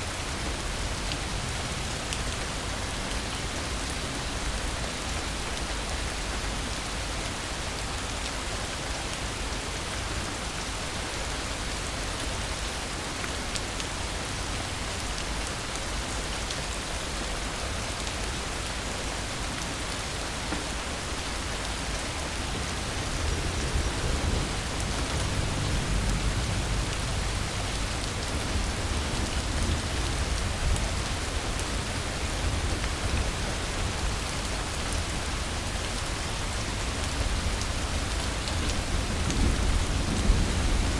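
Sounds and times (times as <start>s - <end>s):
steady rain falling: 0.0s - 40.9s
distant thunder rumble: 22.6s - 31.1s.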